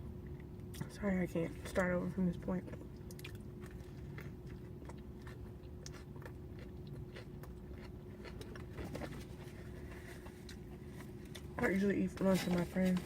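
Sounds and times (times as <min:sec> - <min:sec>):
person chewing food: 0:02.7 - 0:11.6.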